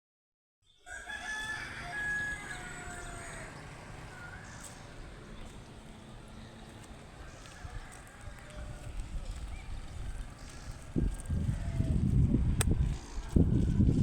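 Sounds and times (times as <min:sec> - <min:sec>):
steady background noise: 0:00.8 - 0:14.0
bird calling: 0:01.8 - 0:07.9, 0:09.5 - 0:10.9.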